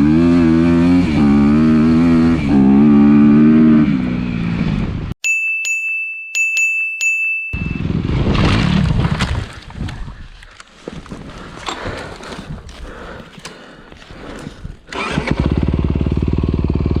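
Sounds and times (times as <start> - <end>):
dirt bike engine running: 14.2 - 17.0.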